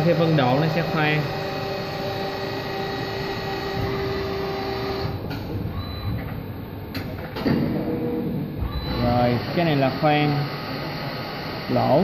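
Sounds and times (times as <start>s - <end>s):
held machine tone: 0.0s - 5.2s, 5.8s - 6.3s, 7.9s - 12.0s
lathe machine whine: 0.0s - 5.2s, 8.6s - 12.0s.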